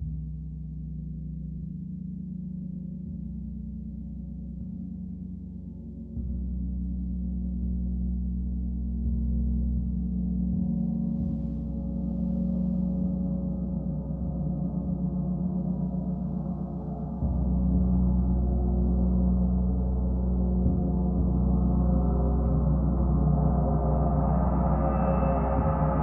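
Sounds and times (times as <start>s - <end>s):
gong ringing: 22.6s - 26.0s.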